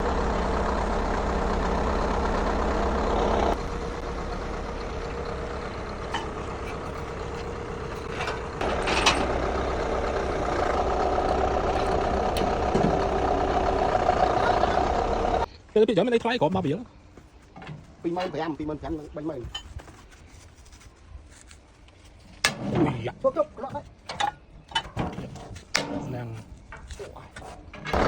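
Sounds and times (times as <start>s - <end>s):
heavy engine running: 0.0s - 15.5s, 27.6s - 28.0s.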